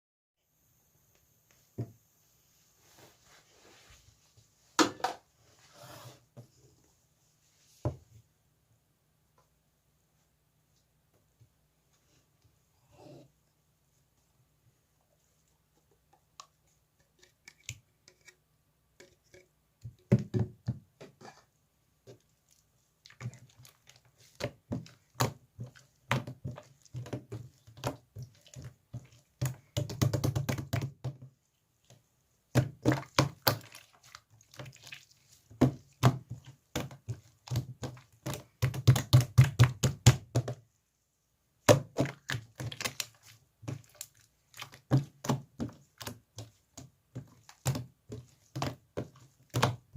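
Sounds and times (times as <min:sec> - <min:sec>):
hands squishing slime: 0:22.1 - 0:31.0, 0:31.8 - 0:40.6, 0:41.6 - 0:49.9.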